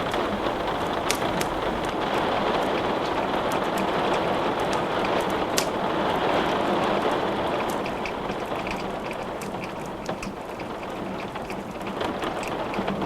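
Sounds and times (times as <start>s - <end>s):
rain hissing: 0.0s - 7.6s
wood crackling in fireplace: 0.0s - 13.0s.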